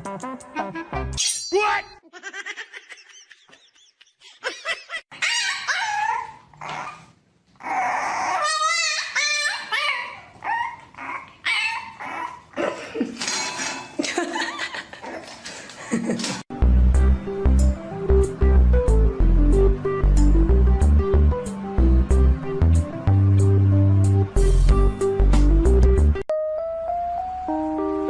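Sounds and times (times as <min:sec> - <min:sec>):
dog barking and whining: 0:05.1 - 0:12.5.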